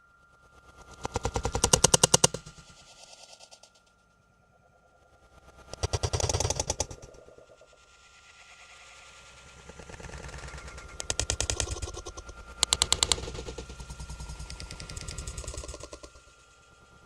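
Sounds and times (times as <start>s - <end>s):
faint steady tone: 2.5s - 5.7s
rapid rattling clatter: 5.7s - 7.1s, 9.8s - 16.2s.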